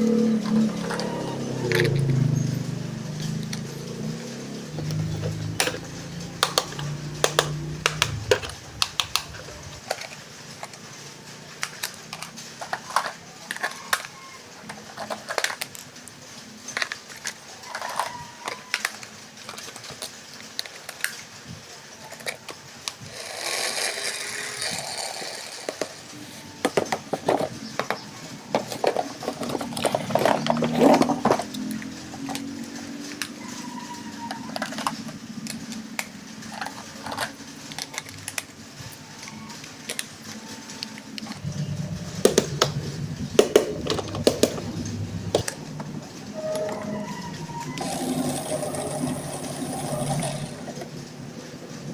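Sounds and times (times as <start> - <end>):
handling toy packaging: 11.5 - 41.5.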